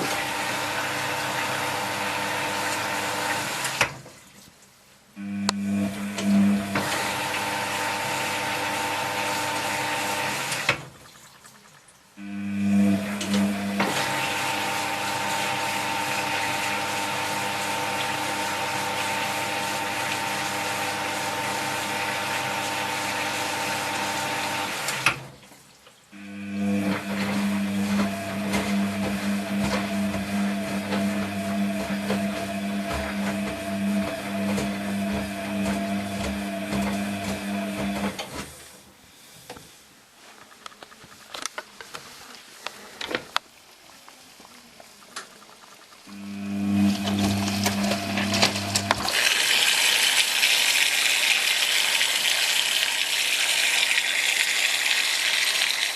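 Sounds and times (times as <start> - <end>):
washing machine filling with water: 0.0 - 4.4, 5.2 - 38.8, 44.5 - 55.9
valve click: 5.4 - 5.6.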